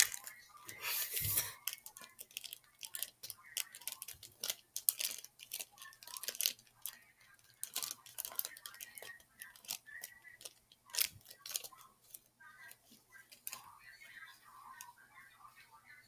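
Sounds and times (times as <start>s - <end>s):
slime sticky clicks and crackles: 1.6s - 12.2s.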